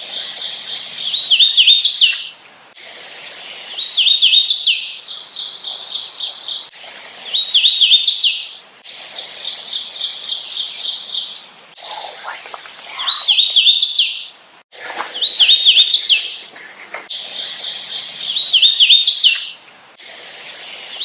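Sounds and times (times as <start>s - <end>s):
bird singing whistled song: 0.0s - 2.4s, 3.8s - 6.7s, 7.3s - 8.6s, 13.0s - 14.4s, 15.1s - 16.5s, 17.1s - 19.6s
background hiss: 0.0s - 21.0s.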